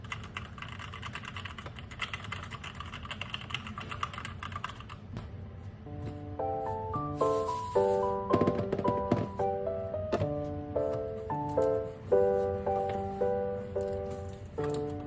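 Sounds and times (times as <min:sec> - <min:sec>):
mechanical keyboard typing: 0:00.0 - 0:05.0
background music: 0:05.6 - 0:15.0.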